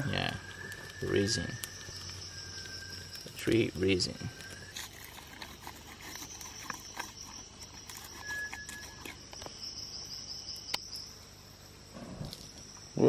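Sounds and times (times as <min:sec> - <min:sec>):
short whistled note: 0:00.0 - 0:04.8, 0:08.1 - 0:09.1
insects trilling: 0:00.0 - 0:13.0.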